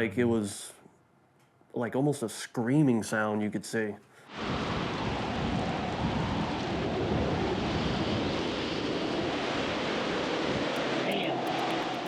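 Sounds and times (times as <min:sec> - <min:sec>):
strong wind blowing: 0:04.4 - 0:12.0.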